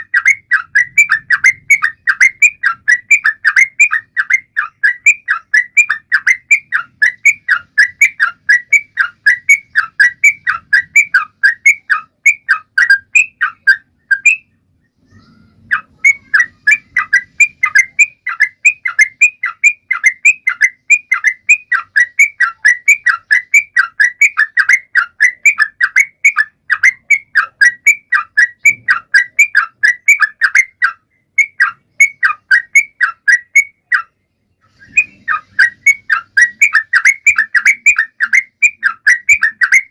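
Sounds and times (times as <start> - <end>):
bulbul singing rapid chirps: 0.0 - 39.9.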